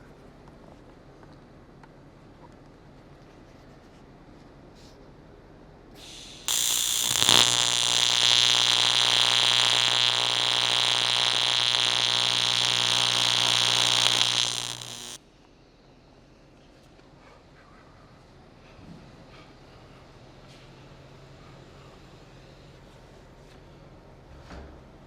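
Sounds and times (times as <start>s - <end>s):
welding arc buzzing: 6.0s - 15.2s.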